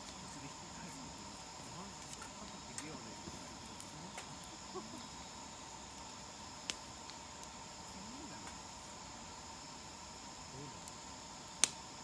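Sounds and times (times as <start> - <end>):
faint voices: 0.0 - 5.3
campfire popping and crackling: 0.0 - 12.0
crickets chirring: 0.0 - 12.0.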